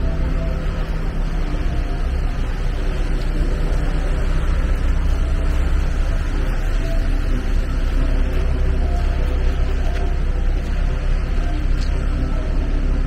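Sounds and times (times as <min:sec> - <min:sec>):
machinery rumble with hiss: 0:00.0 - 0:13.0.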